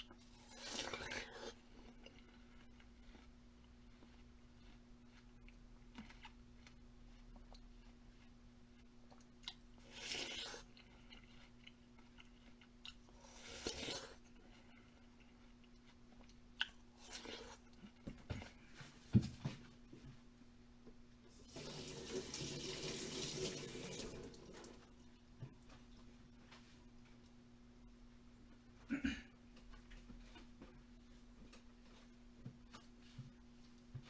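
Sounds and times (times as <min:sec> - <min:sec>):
crunchy eating sounds: 0:00.0 - 0:18.1.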